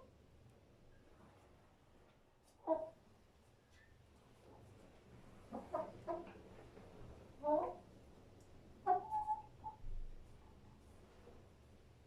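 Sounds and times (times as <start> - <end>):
chicken clucking: 2.4 - 3.0, 5.4 - 6.8, 7.4 - 7.9, 8.8 - 9.9.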